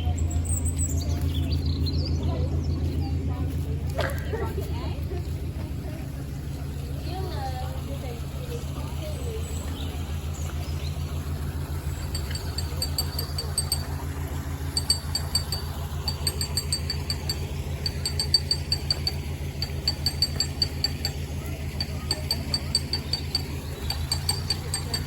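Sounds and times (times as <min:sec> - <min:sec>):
boat engine chugging: 0:00.0 - 0:25.0
rapid high-pitched ticks: 0:11.8 - 0:14.1, 0:14.7 - 0:25.0.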